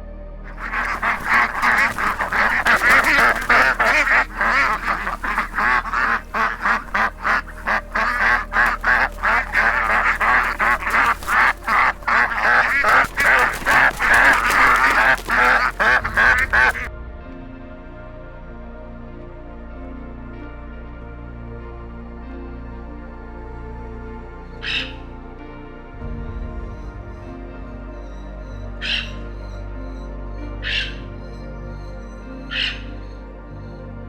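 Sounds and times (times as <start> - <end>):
soft background music: 0.0 - 34.0
waterfowl flock calling: 0.5 - 16.9, 24.6 - 25.0, 28.8 - 29.3, 30.6 - 31.1, 32.5 - 33.0.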